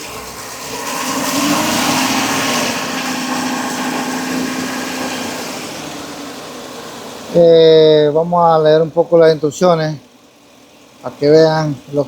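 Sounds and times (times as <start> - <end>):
misfiring engine revving: 0.8 - 9.9.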